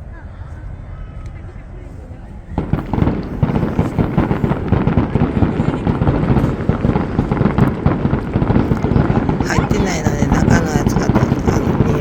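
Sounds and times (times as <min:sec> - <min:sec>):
fireworks bangs: 0:02.5 - 0:12.0.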